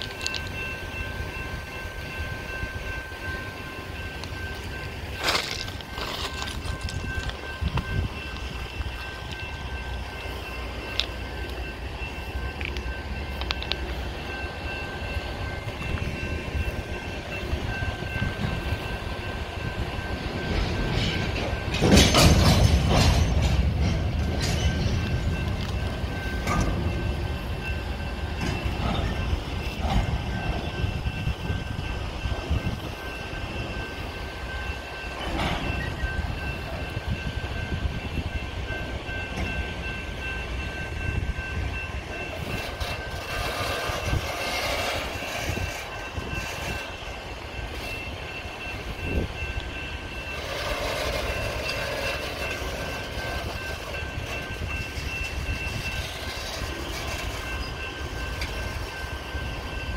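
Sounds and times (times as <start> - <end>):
freight train rumbling past: 0.0 - 59.9
metallic clanks and knocks: 20.6 - 25.7.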